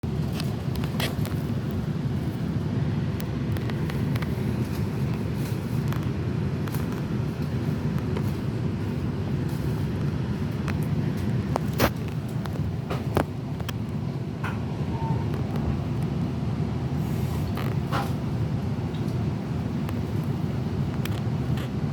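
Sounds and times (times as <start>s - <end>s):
train rumbling: 0.0s - 21.9s.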